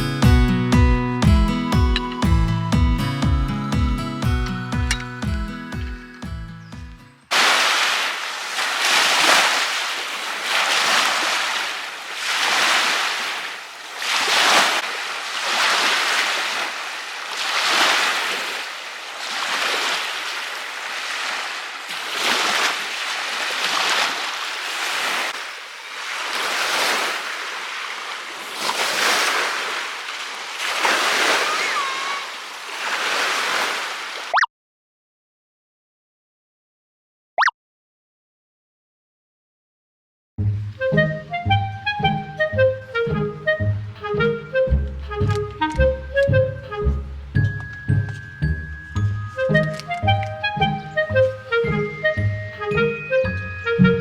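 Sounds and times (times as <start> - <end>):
lake waves washing onto shore: 7.3 - 34.4.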